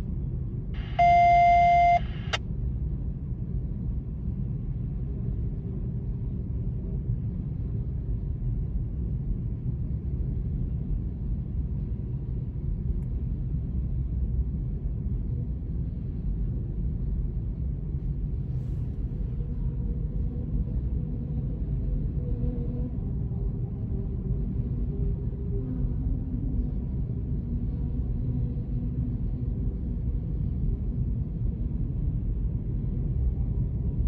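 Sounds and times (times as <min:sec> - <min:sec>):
loud electronic beep: 0:00.8 - 0:02.4.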